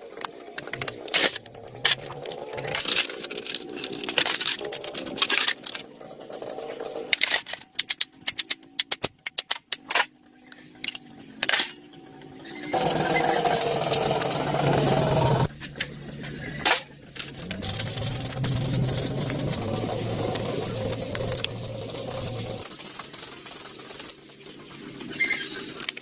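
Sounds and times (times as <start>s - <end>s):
metal tools clicking and knocking: 0.6s - 10.1s
small power tool motor: 12.7s - 15.5s.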